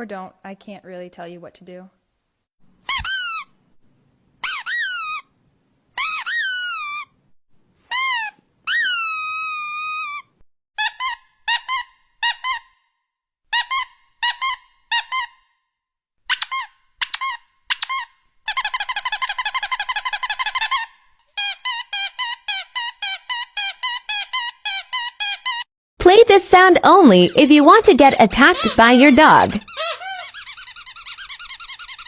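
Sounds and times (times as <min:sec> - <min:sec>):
squeaky dog toy squeaking: 0:02.8 - 0:03.6, 0:04.4 - 0:05.3, 0:06.0 - 0:07.2, 0:07.8 - 0:12.8, 0:13.5 - 0:15.4, 0:16.3 - 0:25.7, 0:27.0 - 0:32.0.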